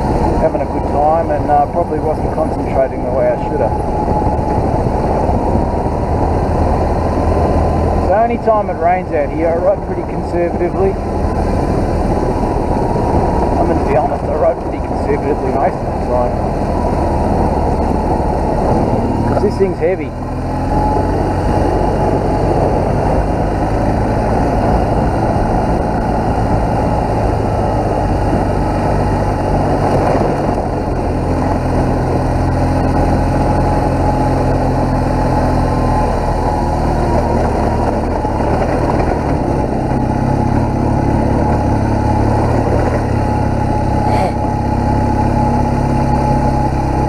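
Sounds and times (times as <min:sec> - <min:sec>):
motorcycle engine running: 0:00.0 - 0:47.0
wind noise: 0:00.0 - 0:47.0.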